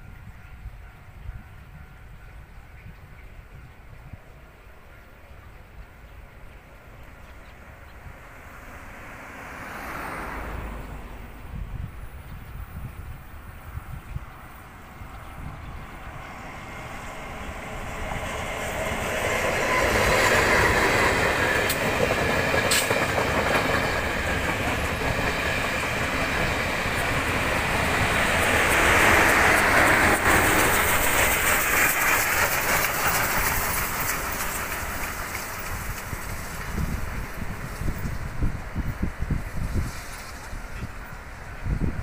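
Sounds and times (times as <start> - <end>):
passenger train passing: 0.0 - 42.0
wheels clickety-clack: 17.2 - 38.4.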